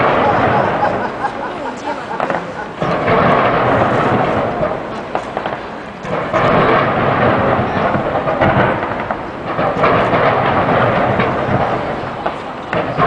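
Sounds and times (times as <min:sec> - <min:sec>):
fireworks crackling and rumbling: 0:00.0 - 0:13.0.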